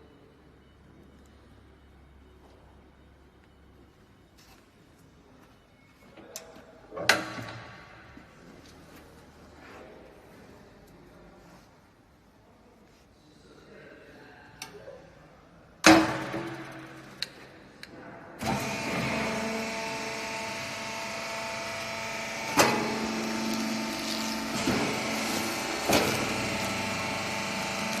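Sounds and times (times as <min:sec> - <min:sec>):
machine clunks: 0:15.8 - 0:17.4, 0:22.2 - 0:28.0
baler machinery humming: 0:18.4 - 0:28.0.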